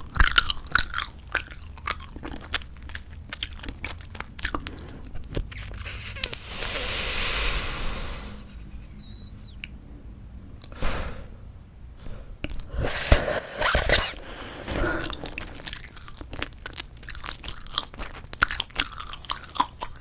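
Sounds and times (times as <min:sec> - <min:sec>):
faint squeaks: 0:05.5 - 0:09.6
breathy blow of bubble: 0:05.6 - 0:09.6.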